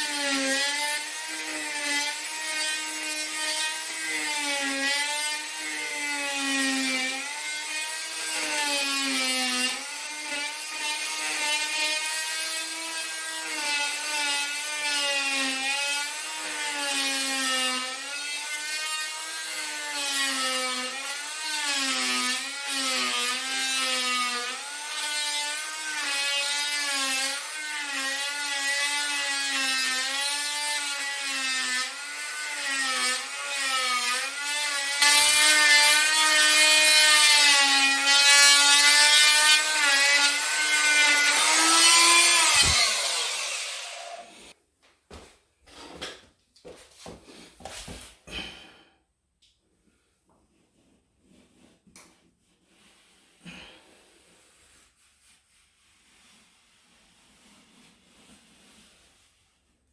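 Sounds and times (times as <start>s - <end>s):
power tool cutting wood: 0.0s - 44.6s.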